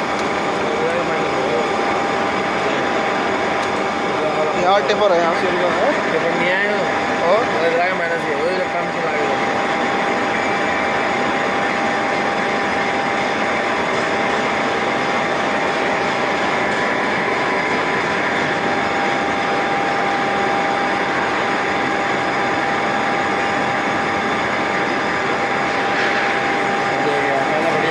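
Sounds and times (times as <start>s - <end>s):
boring mill machine whine: 0.0s - 27.9s.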